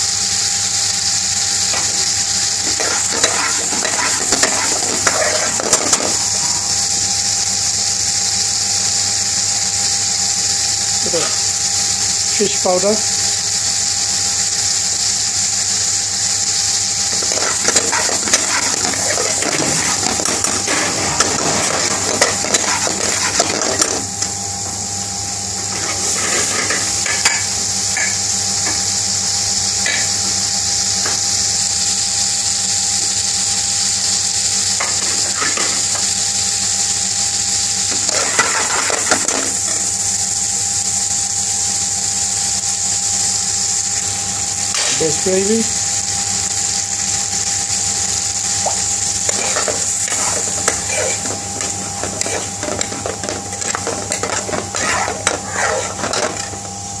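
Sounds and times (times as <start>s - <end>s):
curry sizzling and bubbling in pan: 0.0s - 57.0s
steady low hum: 1.3s - 10.0s, 15.7s - 31.1s, 45.7s - 57.0s
metal spoon scraping pan: 2.6s - 6.2s, 17.1s - 24.0s, 25.7s - 28.2s, 49.3s - 56.7s.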